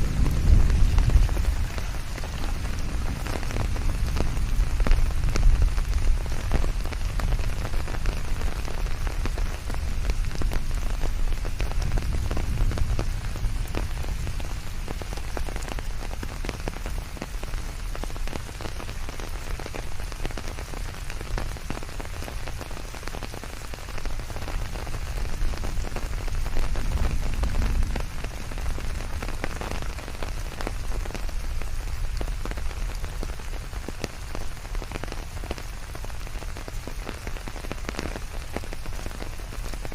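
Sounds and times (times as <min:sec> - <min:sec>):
raindrops pattering: 0:00.0 - 0:39.9
deep low rumble: 0:11.6 - 0:15.0, 0:25.1 - 0:29.9.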